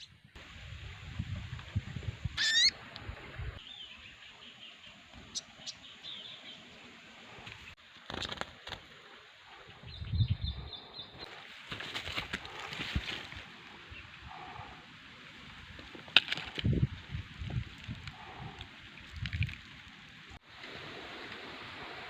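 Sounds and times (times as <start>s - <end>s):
small bird calling: 2.4s - 2.8s.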